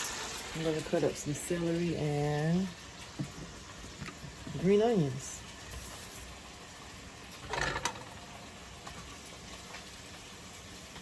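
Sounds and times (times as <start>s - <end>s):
pot simmering: 0.0s - 11.0s
kitchen utensils clattering: 7.4s - 8.2s.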